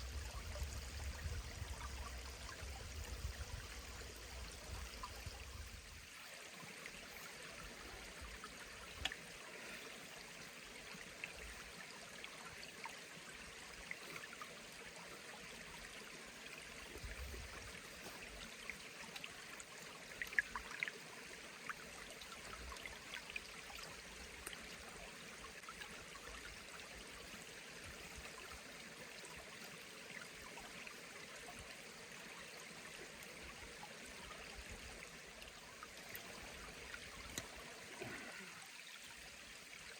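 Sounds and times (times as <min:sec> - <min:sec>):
stream running: 0:00.0 - 0:39.9
faint ticks: 0:08.8 - 0:09.3, 0:24.4 - 0:24.6, 0:36.9 - 0:38.4.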